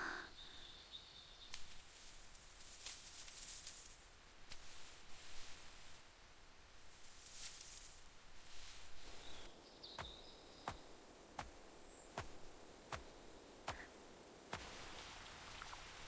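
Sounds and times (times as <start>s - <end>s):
faint bird chirps: 0.0s - 1.9s, 9.0s - 14.1s.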